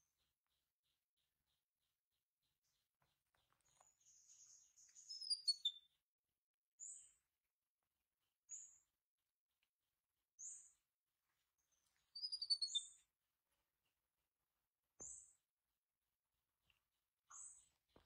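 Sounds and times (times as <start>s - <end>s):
small bird chirping: 0.0s - 6.0s, 11.6s - 13.1s
falling bird twitter: 12.2s - 13.0s.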